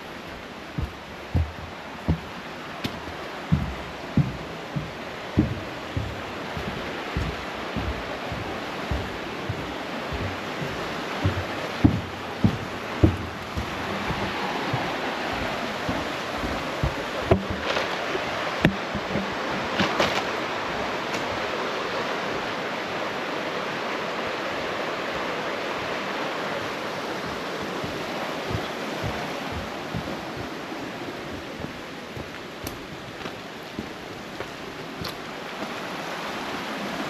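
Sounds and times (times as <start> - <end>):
creek water flowing over rocks: 0.0 - 37.0
short knocks: 0.3 - 17.9, 18.6 - 20.2.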